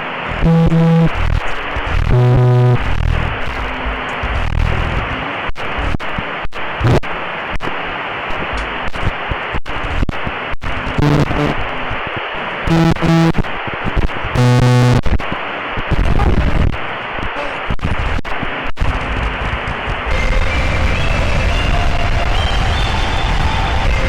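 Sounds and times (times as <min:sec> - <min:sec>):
buzzy electronic tone: 0:00.0 - 0:06.0, 0:06.8 - 0:07.0, 0:10.8 - 0:12.1, 0:12.7 - 0:13.4, 0:14.3 - 0:15.0
harsh static noise: 0:00.0 - 0:24.0.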